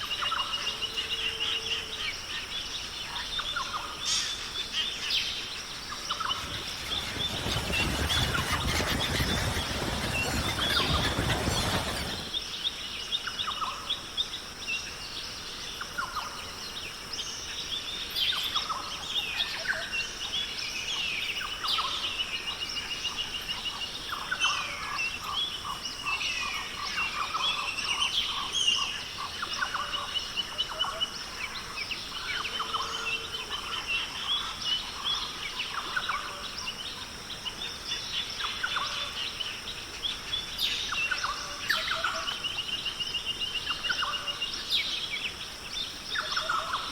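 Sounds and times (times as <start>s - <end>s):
birds chirping and singing: 6.1s - 12.4s.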